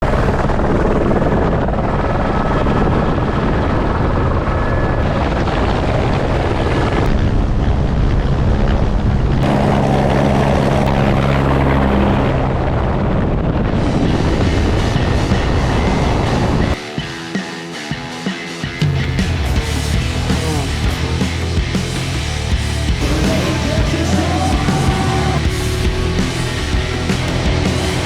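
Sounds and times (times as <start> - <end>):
loud engine running: 9.4 - 16.6, 19.2 - 28.0.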